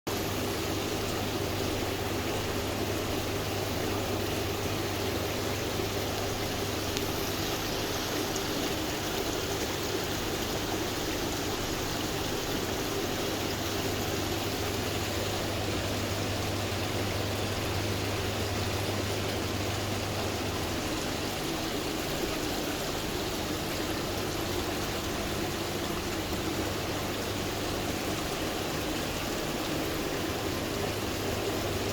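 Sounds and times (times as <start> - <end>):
low steady hum: 0.1 - 31.9
water trickling over stone: 0.1 - 31.9.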